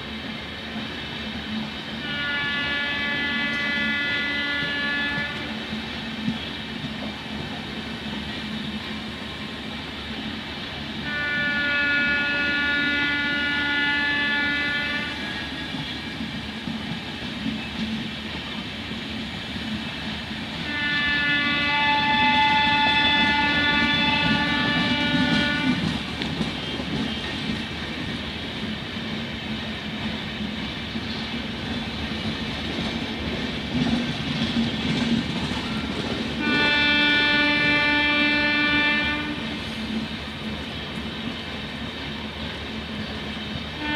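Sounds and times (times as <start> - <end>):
train rumbling on rails: 0.0 - 43.9
train horn blasts: 2.0 - 5.8, 11.0 - 15.6, 20.6 - 26.0, 35.6 - 39.8.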